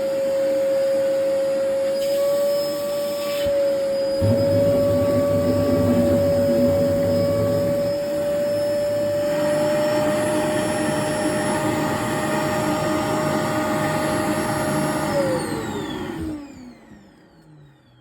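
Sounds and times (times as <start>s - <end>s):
vacuum cleaner motor whine: 0.0s - 18.0s.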